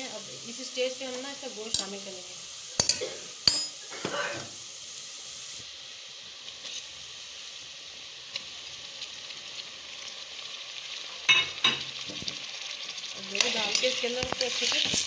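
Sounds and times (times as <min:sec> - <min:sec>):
food sizzling in hot oil: 0:00.0 - 0:15.0
metal spoon clinking on pot: 0:02.8 - 0:03.8.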